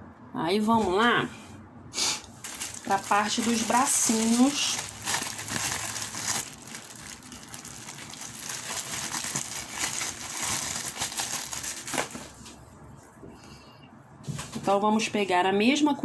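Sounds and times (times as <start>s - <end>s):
plastic packaging crinkling: 2.3s - 12.6s.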